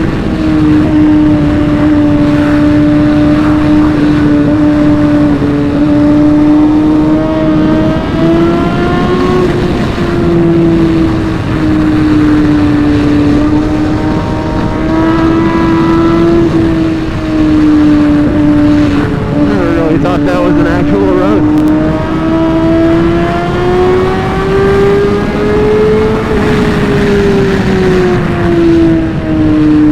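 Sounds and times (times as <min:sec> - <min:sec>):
motorcycle engine at high revs: 0:00.0 - 0:29.9
wind rumble on microphone: 0:00.0 - 0:29.9.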